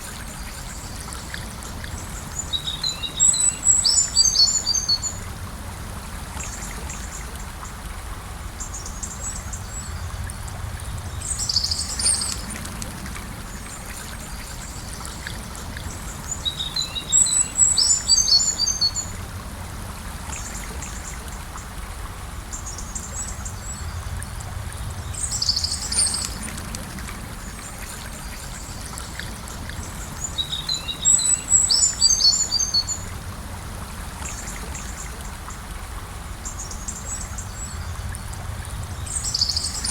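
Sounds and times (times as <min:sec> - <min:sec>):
river flowing: 0:00.0 - 0:39.9
songbird chirping: 0:14.6 - 0:19.2, 0:28.3 - 0:33.1.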